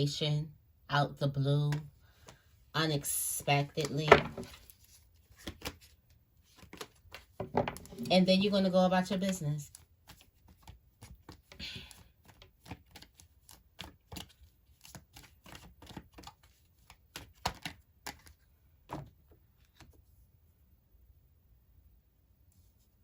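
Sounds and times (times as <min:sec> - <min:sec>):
cards being shuffled: 0:03.6 - 0:08.2, 0:09.2 - 0:20.0.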